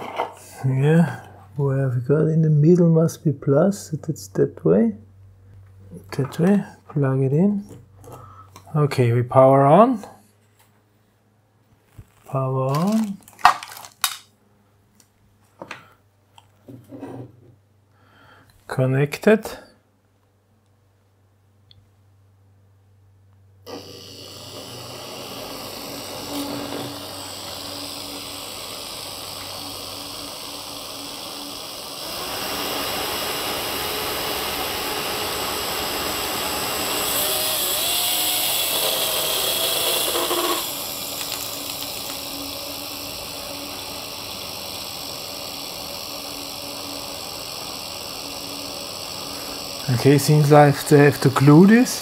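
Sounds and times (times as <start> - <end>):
electric fan motor whirring: 23.6 - 52.0.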